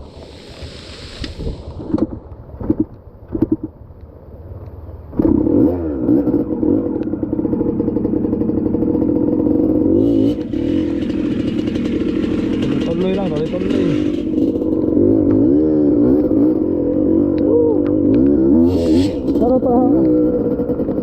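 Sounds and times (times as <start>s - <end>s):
dirt bike engine revving: 5.2s - 21.0s.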